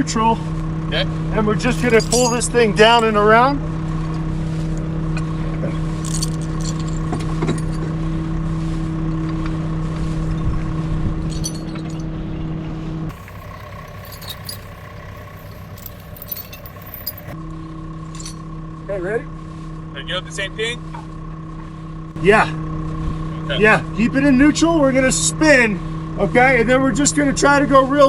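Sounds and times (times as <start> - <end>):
vehicle engine running: 0.1 - 28.0
light metallic clinks: 1.8 - 3.2, 6.0 - 7.9, 11.3 - 12.1, 13.1 - 17.4.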